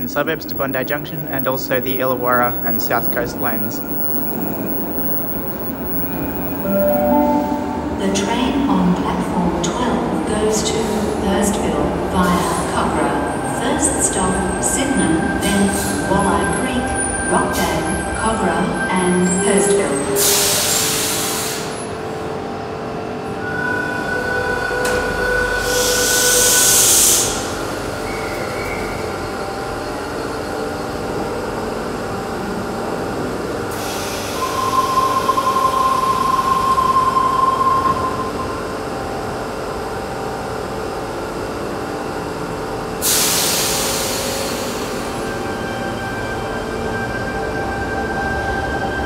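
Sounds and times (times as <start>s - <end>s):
train equipment hum: 0.0s - 12.2s.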